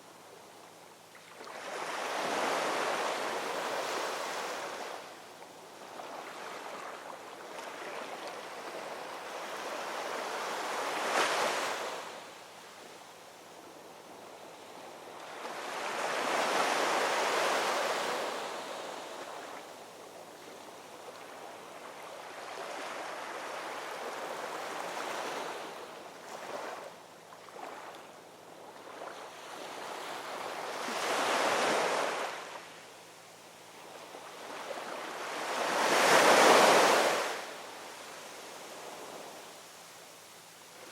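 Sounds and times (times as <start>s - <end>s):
ocean waves breaking on shore: 1.2s - 5.1s, 5.8s - 12.3s, 14.9s - 19.8s, 28.7s - 32.8s, 33.8s - 39.5s.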